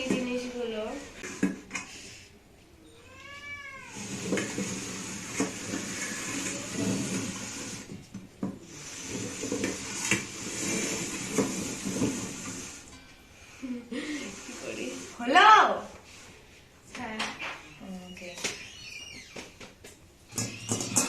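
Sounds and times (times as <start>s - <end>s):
cat meowing: 2.8s - 4.2s, 20.3s - 21.0s
dishes clattering on a table: 19.4s - 21.0s.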